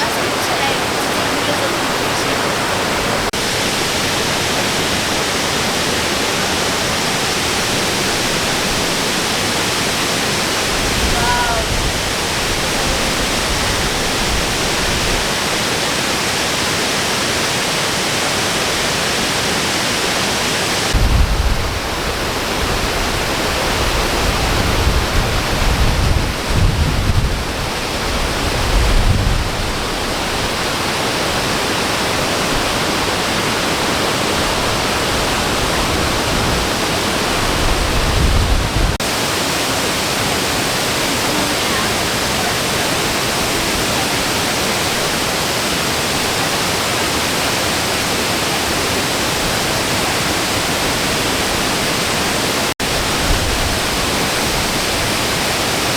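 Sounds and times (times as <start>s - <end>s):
waterfall roaring: 0.0s - 55.9s
wind buffeting the microphone: 4.1s - 16.1s, 20.8s - 39.1s, 52.8s - 55.9s.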